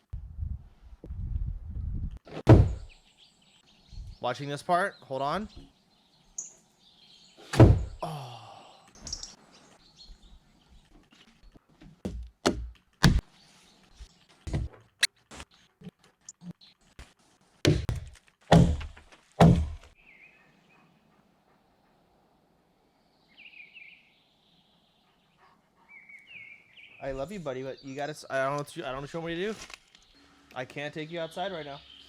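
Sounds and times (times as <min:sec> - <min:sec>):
heavy wooden thunks: 0:02.3 - 0:02.9, 0:07.5 - 0:08.1, 0:11.8 - 0:13.2, 0:14.5 - 0:14.9, 0:17.7 - 0:19.9
birds chirping: 0:02.6 - 0:11.7, 0:20.0 - 0:22.1, 0:22.9 - 0:32.0.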